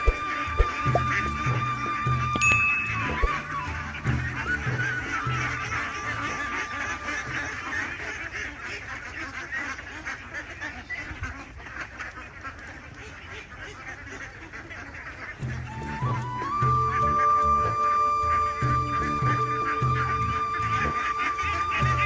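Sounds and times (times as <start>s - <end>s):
background music: 0.0s - 8.0s, 15.4s - 22.0s
ducks quacking: 0.0s - 22.0s.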